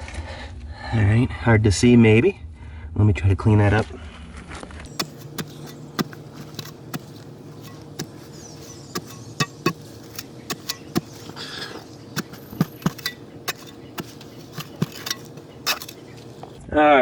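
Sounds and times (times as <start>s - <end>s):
steady low hum: 4.9s - 16.6s.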